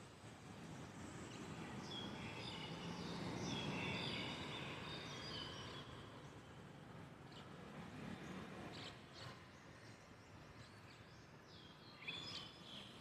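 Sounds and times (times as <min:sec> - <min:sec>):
birds singing: 0:01.3 - 0:06.5, 0:08.2 - 0:13.0.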